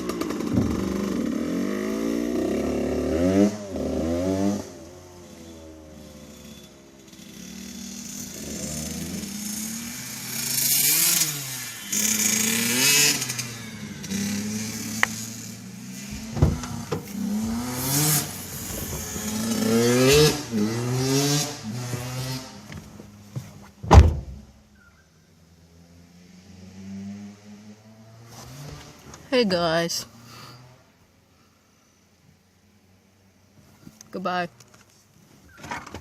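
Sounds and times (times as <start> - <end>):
two-stroke dirt bike engine revving: 0.0 - 22.7.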